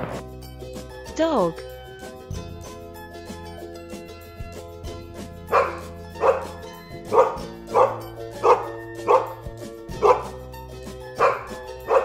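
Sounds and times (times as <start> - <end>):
background music sustained notes: 0.0 - 12.0
dog barking: 5.5 - 10.4, 11.2 - 12.0.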